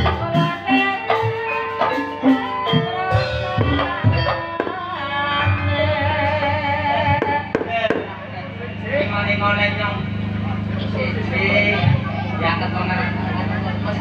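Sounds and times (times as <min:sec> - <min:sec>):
low drone: 0:03.0 - 0:14.0.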